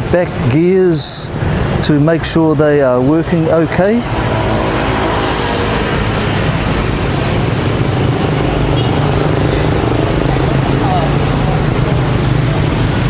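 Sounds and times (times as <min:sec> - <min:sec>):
street traffic noise: 0:00.0 - 0:13.0
engine hum: 0:01.1 - 0:13.0.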